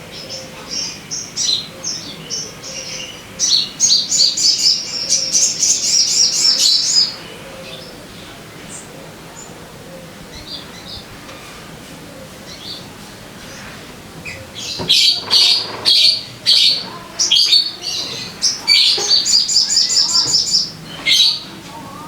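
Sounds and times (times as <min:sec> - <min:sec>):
harsh bird calls: 0:00.0 - 0:22.0
bird chirps: 0:13.4 - 0:21.6.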